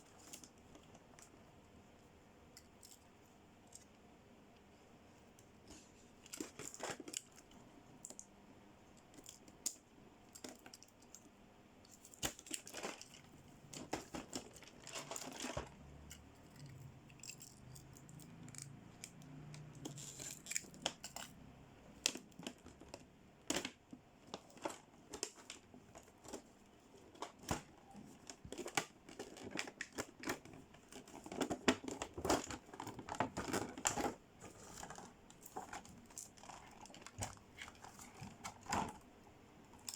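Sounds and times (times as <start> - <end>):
plastic packaging crinkling and tearing: 12.1 - 21.4, 22.0 - 39.0.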